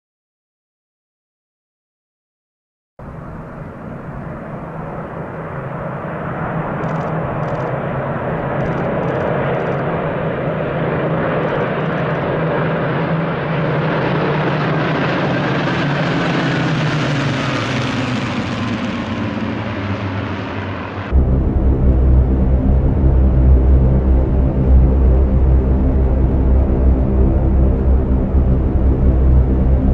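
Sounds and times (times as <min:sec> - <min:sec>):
propeller aircraft engine droning: 0:03.0 - 0:29.9
faint falling whine: 0:21.0 - 0:29.9.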